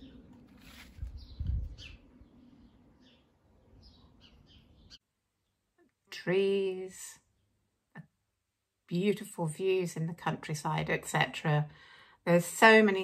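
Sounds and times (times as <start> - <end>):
small birds chirping: 0.0 - 5.9.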